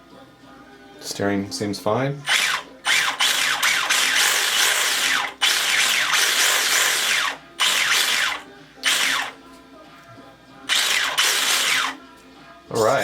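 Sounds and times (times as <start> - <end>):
electric motor whining: 2.3 - 9.4, 10.7 - 12.0.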